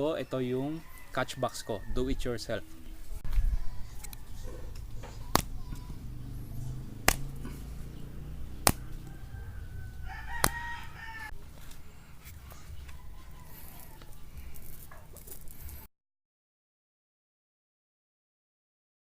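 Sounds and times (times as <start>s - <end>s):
rooster crowing: 0.4s - 2.3s, 3.3s - 11.4s, 12.6s - 14.5s
slingshot shots cracking: 5.2s - 5.8s, 6.9s - 7.6s, 8.5s - 9.1s.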